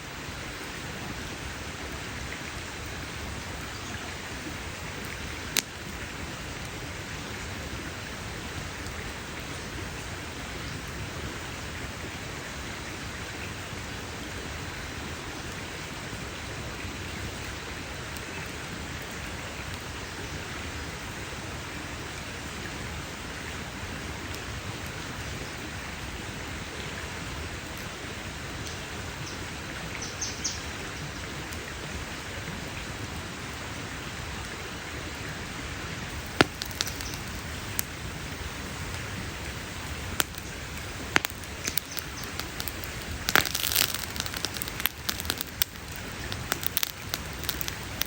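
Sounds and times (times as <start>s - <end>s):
campfire hissing and crackling: 0.0s - 48.0s.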